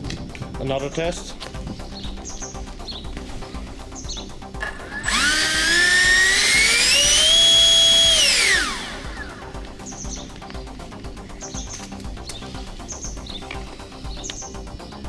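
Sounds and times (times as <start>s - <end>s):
background music: 0.0s - 15.0s
electric ducted fan whine: 3.2s - 10.4s.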